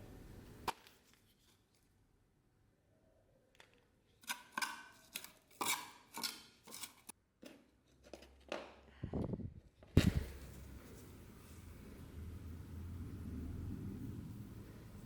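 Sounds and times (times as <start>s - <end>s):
soft handling sounds: 0.8s - 2.0s.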